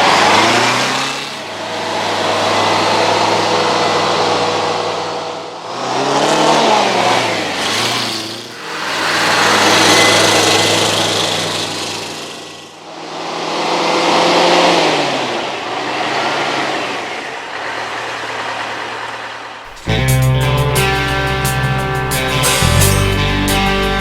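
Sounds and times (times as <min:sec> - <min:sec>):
truck engine revving: 0:19.7 - 0:24.0.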